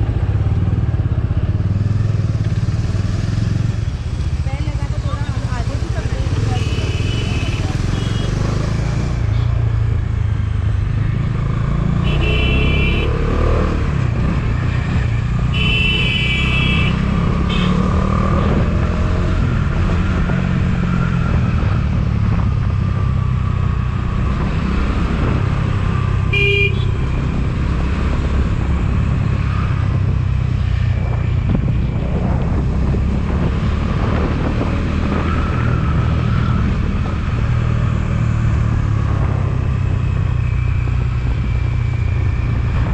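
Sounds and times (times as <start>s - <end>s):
motorcycle engine rumbling: 0.0s - 42.9s
horn honking: 6.5s - 8.5s, 12.0s - 13.4s, 15.5s - 18.1s, 26.3s - 27.0s.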